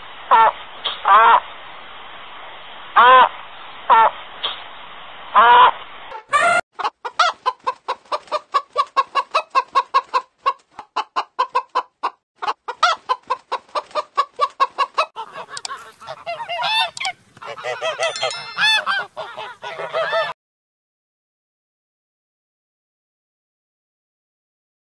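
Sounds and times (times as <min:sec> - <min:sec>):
chickens clucking: 0:05.4 - 0:20.4.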